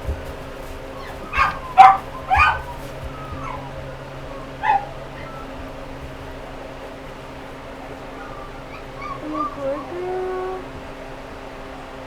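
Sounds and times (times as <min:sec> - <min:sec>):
puppy whining: 0:00.0 - 0:06.8, 0:07.5 - 0:10.9
puppy yelping: 0:00.6 - 0:06.5, 0:07.7 - 0:10.8.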